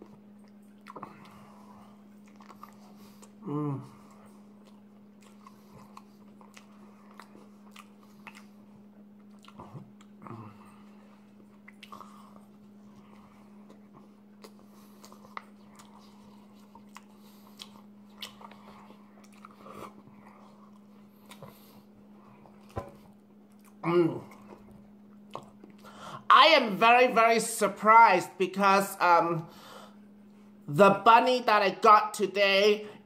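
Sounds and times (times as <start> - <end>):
person chewing a burger: 0.0 - 26.2
steady low hum: 0.0 - 33.0.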